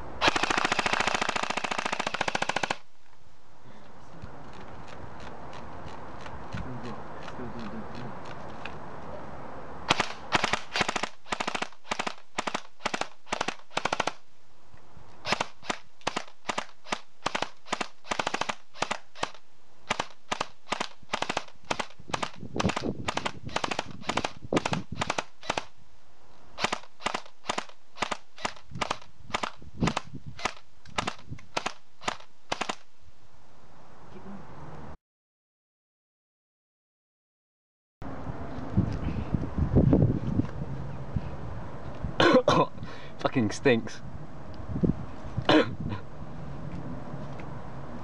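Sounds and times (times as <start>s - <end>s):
airsoft rifle firing: 0.2s - 2.9s, 9.9s - 14.2s, 15.2s - 25.7s, 26.6s - 32.9s.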